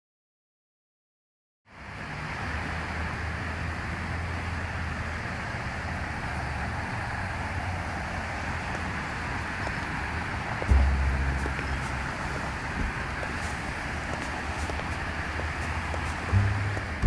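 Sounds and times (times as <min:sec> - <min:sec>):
ambient rumble and hiss: 0:01.8 - 0:17.0
low hum: 0:10.6 - 0:17.0.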